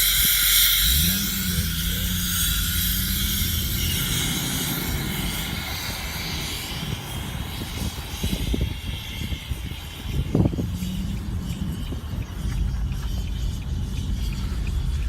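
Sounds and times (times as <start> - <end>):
road noise hiss: 0.0 - 15.0
vehicle engine drone: 0.0 - 15.0.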